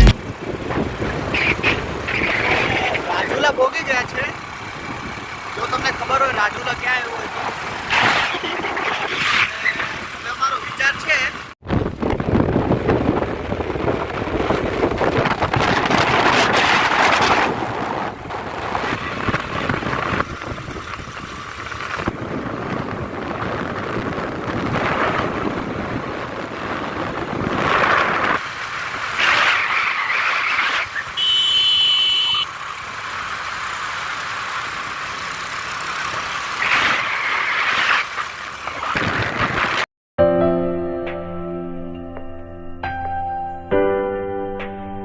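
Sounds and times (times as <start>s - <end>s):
road and wind noise from vehicle: 0.0s - 39.9s.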